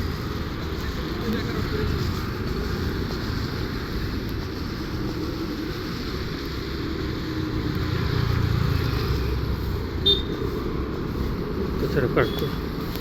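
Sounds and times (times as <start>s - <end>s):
steady hiss: 0.0s - 13.0s
vehicle passing: 0.0s - 13.0s.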